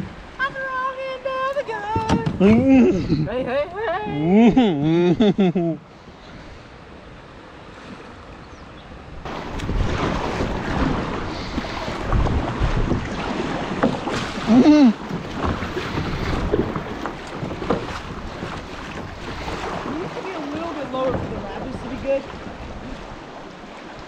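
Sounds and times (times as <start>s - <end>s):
water rushing and splashing: 0.0s - 24.0s
wind buffeting microphone: 8.5s - 24.0s.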